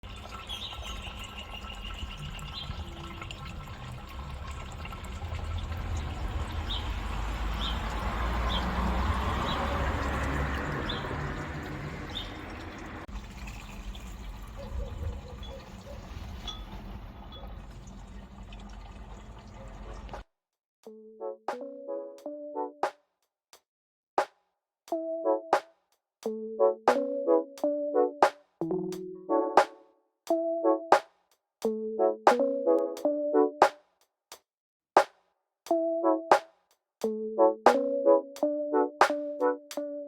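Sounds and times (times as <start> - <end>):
water fountain splashing: 0.0 - 20.2.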